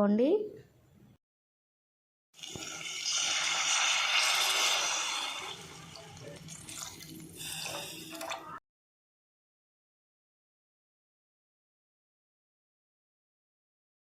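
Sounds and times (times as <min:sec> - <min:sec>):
water hissing in hot pan: 0:02.4 - 0:08.3.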